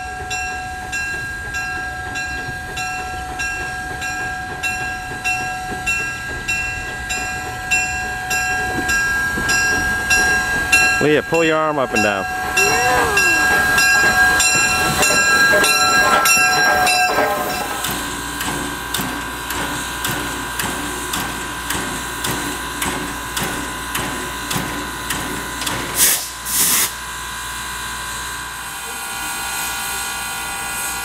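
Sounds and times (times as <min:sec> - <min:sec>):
steam locomotive chuffing: 0:00.0 - 0:31.0
sharp hisses of steam: 0:26.0 - 0:27.0.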